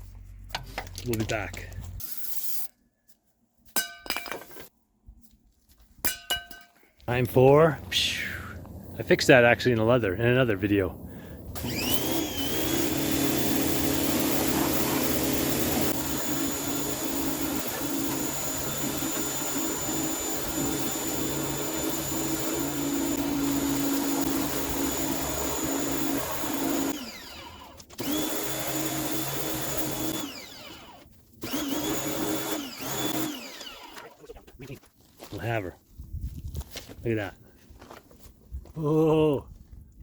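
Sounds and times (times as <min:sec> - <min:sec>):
electric blower motor whining: 0:10.9 - 0:34.1.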